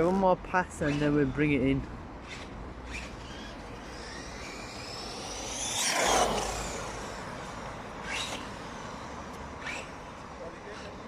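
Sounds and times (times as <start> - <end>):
rc truck motor whining past: 2.2 - 11.0.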